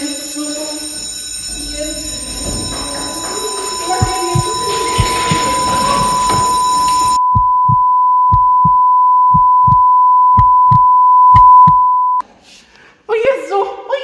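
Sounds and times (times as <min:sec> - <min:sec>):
heartbeat thumping: 0:01.9 - 0:11.9
high sine-wave beep: 0:03.8 - 0:12.2.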